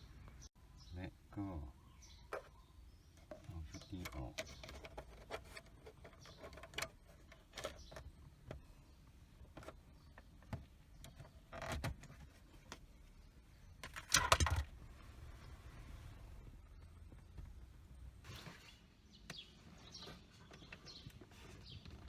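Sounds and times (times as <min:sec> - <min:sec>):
scraping rustle: 0:03.2 - 0:08.0.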